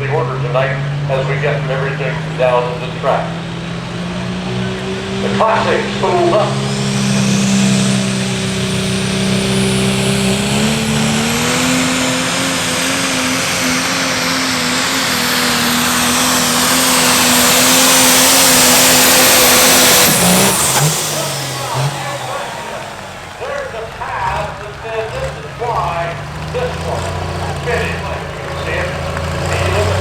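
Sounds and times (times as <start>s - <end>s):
diesel tractor engine: 0.0s - 30.0s
high turbo whistle: 3.8s - 23.6s.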